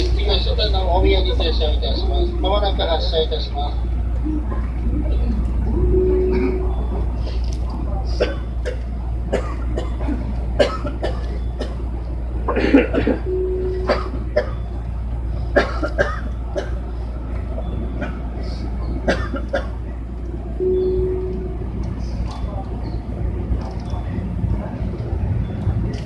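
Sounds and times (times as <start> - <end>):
electric train hum: 0.0 - 26.0
short steady beep: 5.8 - 7.1, 13.2 - 14.0, 20.6 - 21.6.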